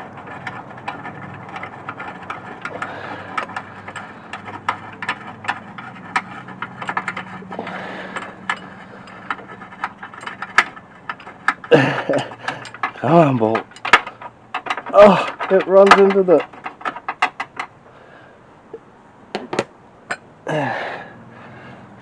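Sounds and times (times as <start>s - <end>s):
steady low hum: 0.0s - 22.0s
wrench clicking on metal: 0.2s - 17.7s.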